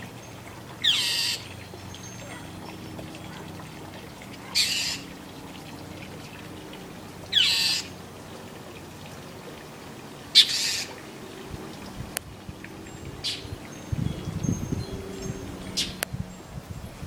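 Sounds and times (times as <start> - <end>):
mockingbird harsh calls: 0.4 - 3.7, 4.3 - 5.2, 7.3 - 8.0, 10.3 - 11.0.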